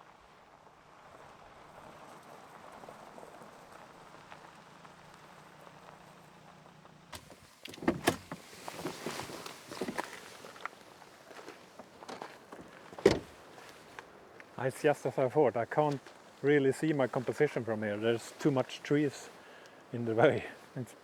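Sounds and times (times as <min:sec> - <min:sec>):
knocks and rustling of movement: 0:06.6 - 0:14.6
car engine humming: 0:07.1 - 0:10.1, 0:11.7 - 0:13.5
car door opening and shutting: 0:07.2 - 0:10.2, 0:12.1 - 0:13.4.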